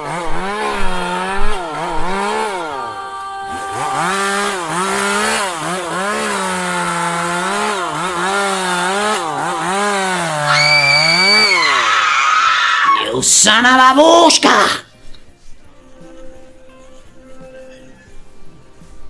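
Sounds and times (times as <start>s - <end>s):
chainsaw engine revving: 0.0s - 13.0s.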